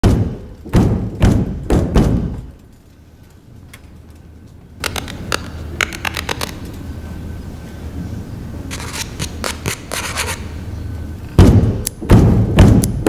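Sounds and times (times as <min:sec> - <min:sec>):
heavy thumps: 0:00.0 - 0:02.6, 0:11.4 - 0:13.0
sharp clicks and scrapes: 0:04.8 - 0:06.8, 0:08.7 - 0:10.5.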